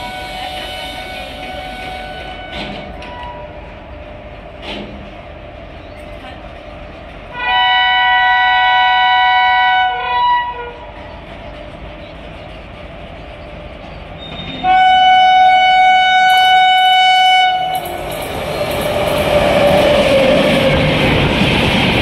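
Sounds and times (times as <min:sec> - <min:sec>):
train horn blast: 0:00.0 - 0:03.6, 0:07.3 - 0:10.8, 0:14.6 - 0:17.9
train rushing past: 0:00.0 - 0:22.0.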